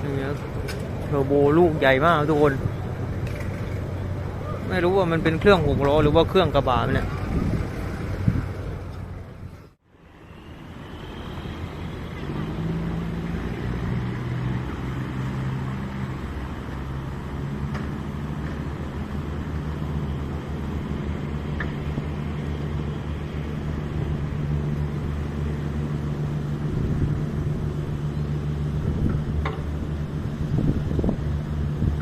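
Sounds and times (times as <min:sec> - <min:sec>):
diesel engine droning: 0:00.0 - 0:32.0.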